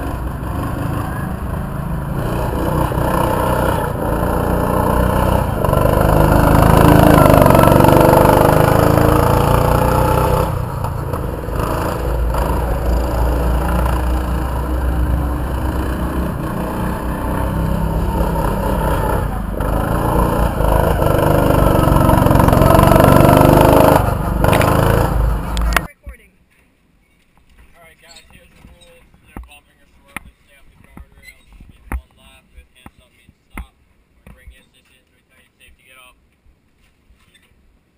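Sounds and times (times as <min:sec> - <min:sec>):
race car engine accelerating: 0:00.0 - 0:25.9.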